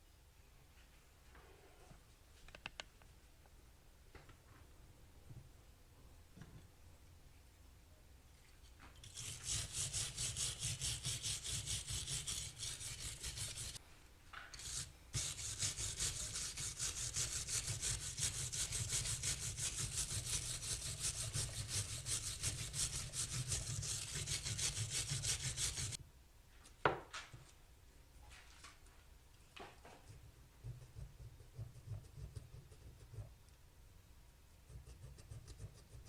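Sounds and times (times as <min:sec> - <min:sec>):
wire brush scrubbing metal: 0:09.0 - 0:13.8, 0:14.6 - 0:26.0.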